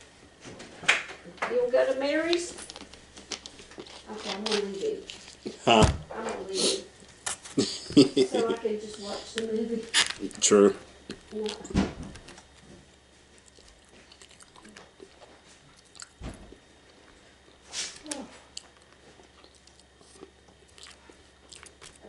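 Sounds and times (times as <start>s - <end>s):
person chewing food: 2.6s - 5.6s, 8.9s - 22.0s.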